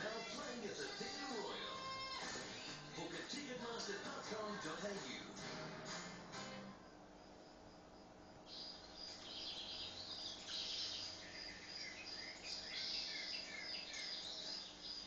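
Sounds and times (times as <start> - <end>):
faint steady hum: 0.0 - 15.0
small birds chirping: 8.3 - 15.0.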